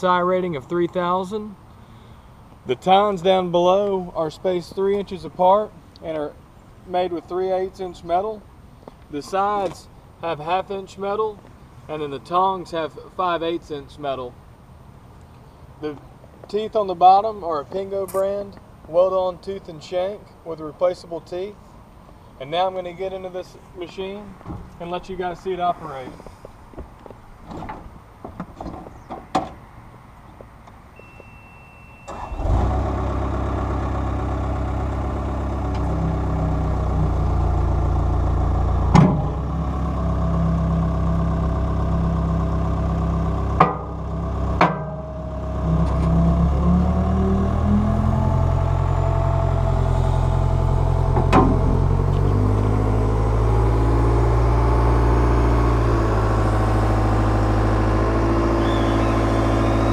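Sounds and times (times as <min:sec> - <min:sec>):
short beep: 0:31.0 - 0:32.5
loader engine running: 0:31.2 - 0:59.9
sharp knocks: 0:43.6 - 0:44.0, 0:44.6 - 0:45.2.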